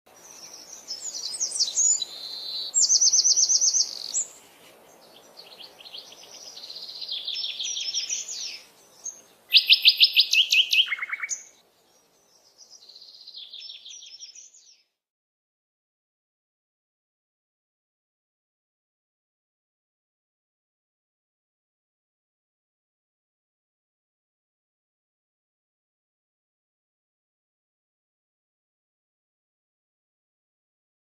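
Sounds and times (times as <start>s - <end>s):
songbird trilling: 0.2s - 14.8s.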